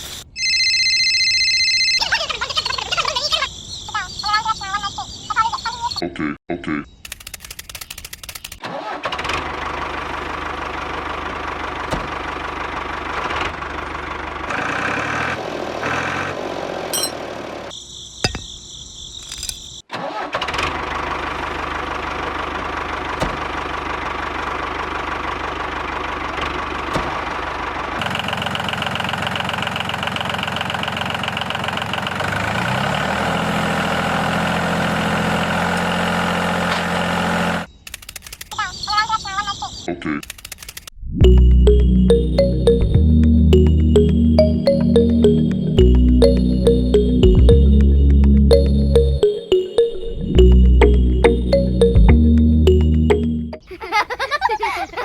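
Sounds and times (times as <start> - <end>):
engine running: 9.0 - 17.7, 50.2 - 53.6.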